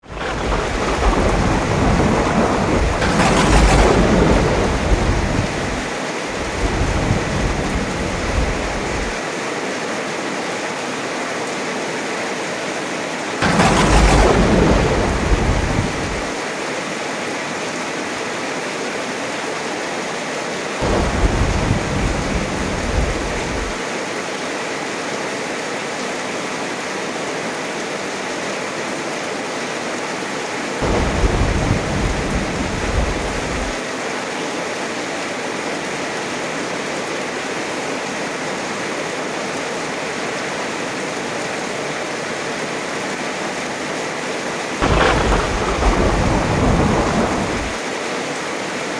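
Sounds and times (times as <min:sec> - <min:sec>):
thunder crack: 0:00.0 - 0:09.2, 0:13.4 - 0:16.4, 0:20.8 - 0:23.8, 0:30.8 - 0:33.8, 0:44.8 - 0:47.8
thunder rumbling: 0:00.0 - 0:09.2, 0:13.4 - 0:16.4, 0:20.8 - 0:23.8, 0:30.8 - 0:33.8, 0:44.8 - 0:47.8
heavy rain: 0:00.0 - 0:48.9.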